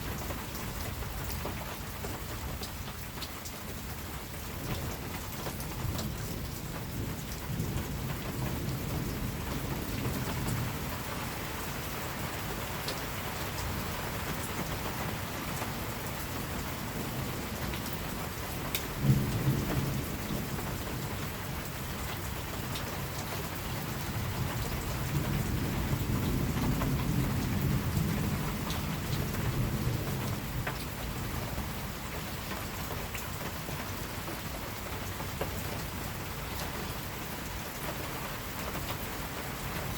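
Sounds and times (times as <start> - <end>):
steady rain: 0.0 - 39.9
thunder rumbling: 16.9 - 21.6, 24.2 - 32.0.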